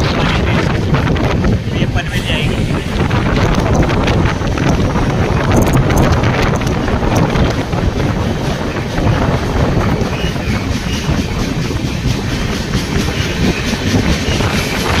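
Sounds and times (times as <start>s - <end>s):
passing train alongside: 0.0s - 15.0s
train running rumble: 0.0s - 15.0s
wind rushing over microphone: 0.0s - 15.0s.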